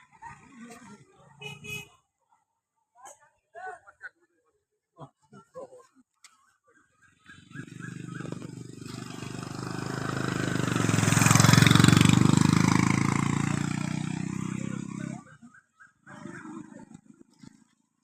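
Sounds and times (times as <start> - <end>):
vehicle engine passing by: 7.3 - 15.4.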